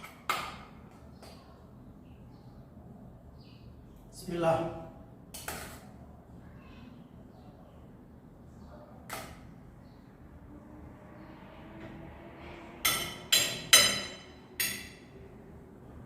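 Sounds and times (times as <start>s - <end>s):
tableware clinking: 12.9s - 15.1s.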